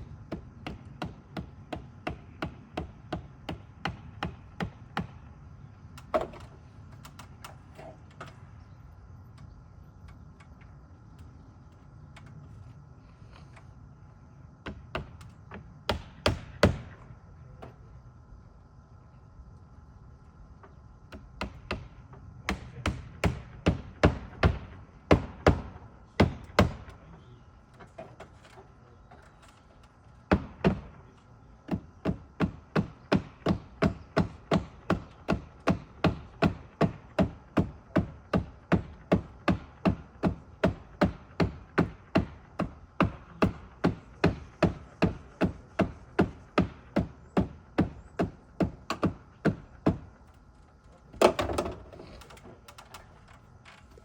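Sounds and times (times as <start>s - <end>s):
hammer driving nails: 31.7s - 50.1s.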